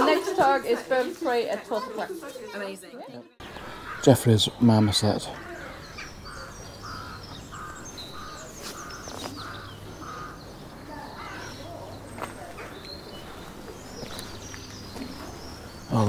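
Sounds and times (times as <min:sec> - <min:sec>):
small birds chirping: 0:00.1 - 0:16.0
bird rapid repeated calls: 0:03.4 - 0:16.0.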